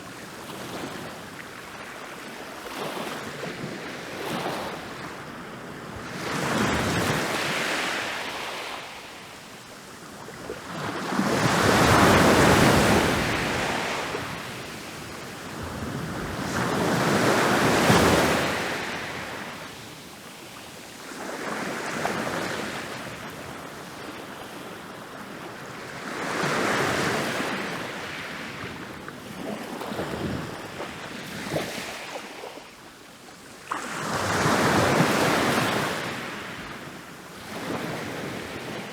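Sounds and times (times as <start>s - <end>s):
ocean waves breaking on beach: 0.0s - 24.8s.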